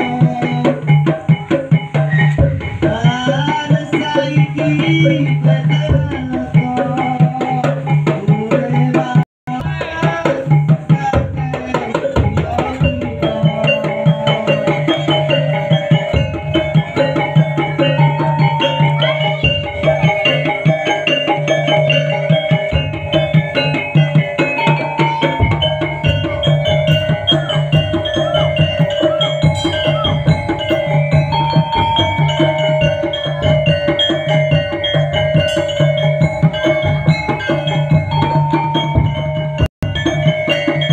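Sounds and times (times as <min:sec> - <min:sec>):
fast dense drumming: 0:00.0 - 0:40.9
ringing gong-like tones: 0:12.7 - 0:40.9.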